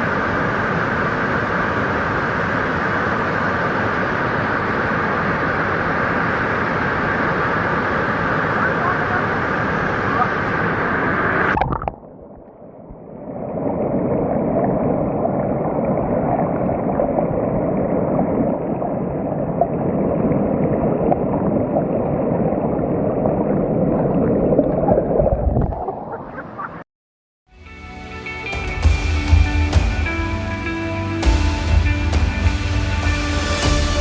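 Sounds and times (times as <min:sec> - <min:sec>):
waterfall rushing: 0:00.0 - 0:11.7.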